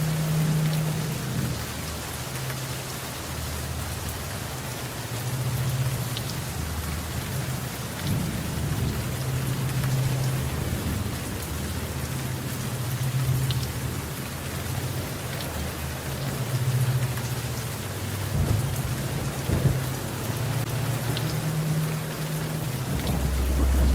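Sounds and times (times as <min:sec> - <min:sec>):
steady rain falling: 0:00.0 - 0:23.9
low thunder rumbling: 0:05.4 - 0:23.9.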